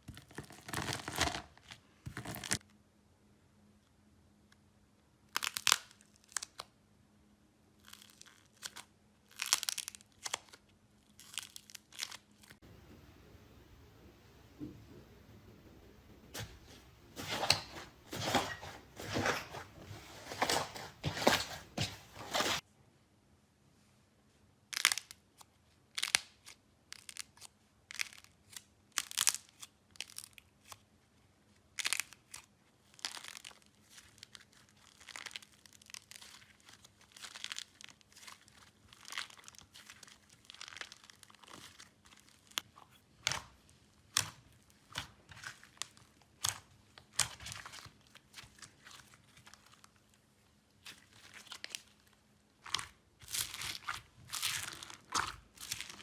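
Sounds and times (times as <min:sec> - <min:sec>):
slime crackling and popping: 0:05.3 - 0:06.6, 0:07.8 - 0:12.6.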